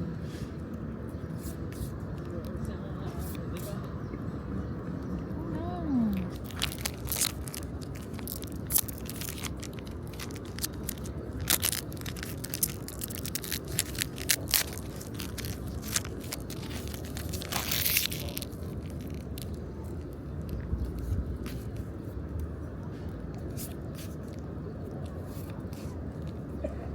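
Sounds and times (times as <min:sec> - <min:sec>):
plastic wrappers crinkling: 0:05.9 - 0:21.7.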